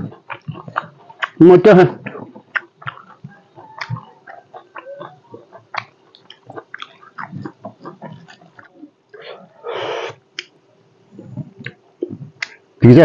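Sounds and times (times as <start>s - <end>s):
wet mouth clicks and smacks: 0.0s - 1.4s, 2.0s - 8.7s, 11.2s - 12.6s
person chewing food: 0.0s - 12.7s.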